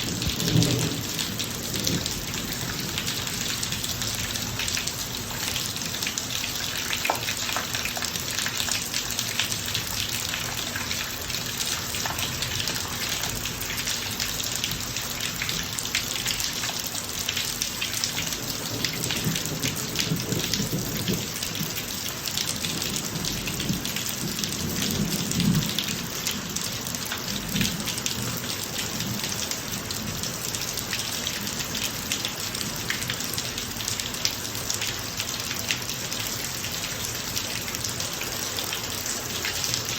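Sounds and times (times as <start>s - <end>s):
low roll of thunder: 0.0s - 3.4s
rain falling on a driveway: 0.0s - 39.9s.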